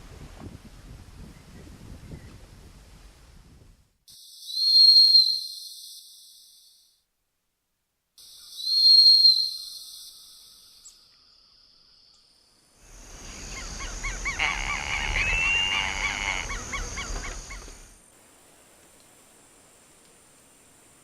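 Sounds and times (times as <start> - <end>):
rapid repeated bird calls: 4.1 - 7.0, 8.2 - 12.3, 13.2 - 18.0
loud whistled bird note: 4.2 - 6.8, 8.2 - 10.8, 15.0 - 16.6.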